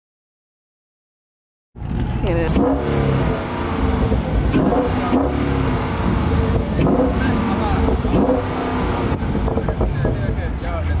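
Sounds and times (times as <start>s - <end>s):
car engine revving: 1.8s - 11.0s
people's voices: 2.0s - 11.0s.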